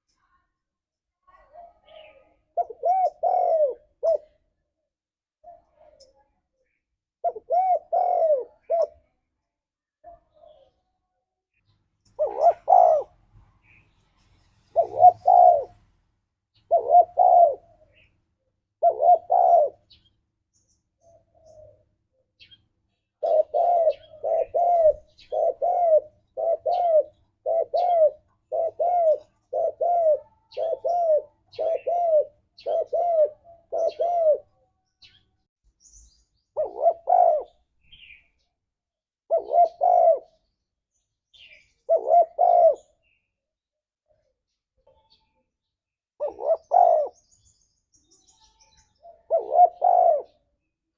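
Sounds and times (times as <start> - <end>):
faint small bird chirps: 0.0 - 9.3, 16.6 - 38.7, 39.3 - 50.9
dove cooing: 1.4 - 4.4, 7.2 - 9.1, 12.2 - 13.8, 14.7 - 15.8, 16.6 - 18.1, 18.7 - 20.0, 21.0 - 22.5, 23.1 - 34.6, 36.6 - 38.2, 39.3 - 40.4, 41.4 - 43.0, 46.2 - 47.2, 49.0 - 50.5.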